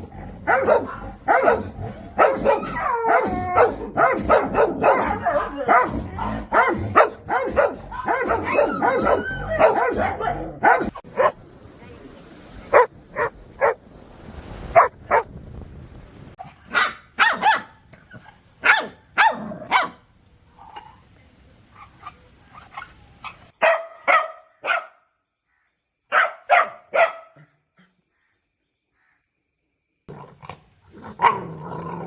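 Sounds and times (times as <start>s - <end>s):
puppies barking: 0.4s - 11.4s, 12.7s - 13.8s, 16.7s - 20.0s, 23.6s - 24.9s, 26.1s - 27.4s.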